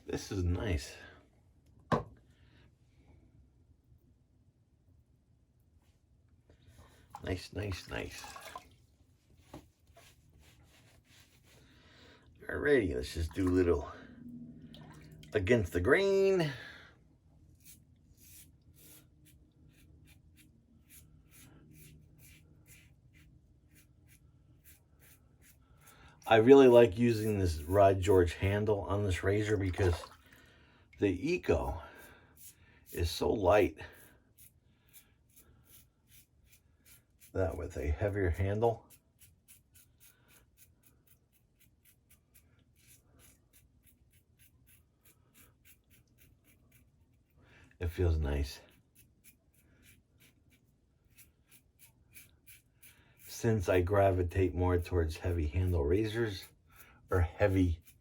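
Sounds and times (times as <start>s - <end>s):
razor scraping stubble: 17.6s - 30.0s, 32.4s - 58.0s.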